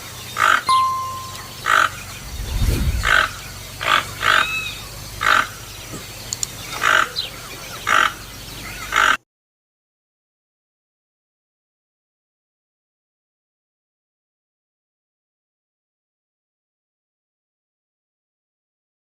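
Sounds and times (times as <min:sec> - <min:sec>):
brief low rumble: 0:02.1 - 0:03.4.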